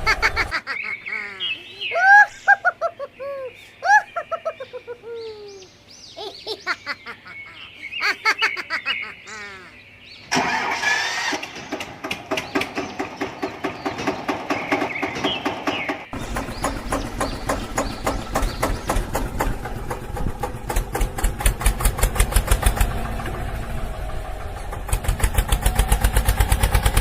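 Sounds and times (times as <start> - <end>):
falling chirping calls: 0.0 - 20.2
engine rattling chug: 10.3 - 27.0.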